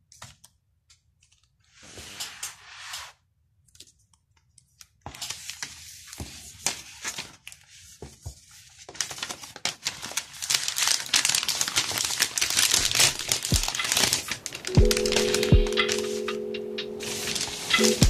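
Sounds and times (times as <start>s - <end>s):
plastic film crinkling: 8.7s - 16.3s, 17.0s - 18.0s.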